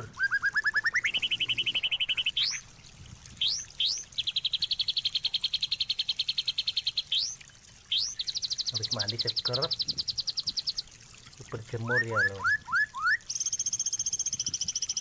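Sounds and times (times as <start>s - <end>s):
songbird trilling: 0.0s - 2.6s, 3.4s - 10.8s, 11.8s - 15.0s
upward-sweeping bird whistles: 0.2s - 2.6s, 11.9s - 15.0s.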